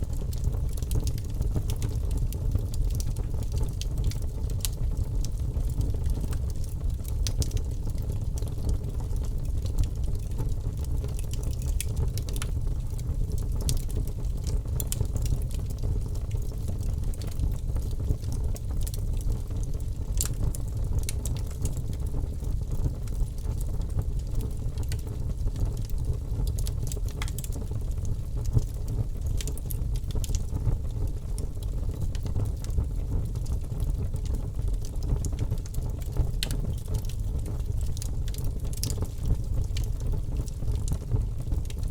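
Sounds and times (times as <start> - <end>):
fireplace fire crackling: 0.0 - 41.9.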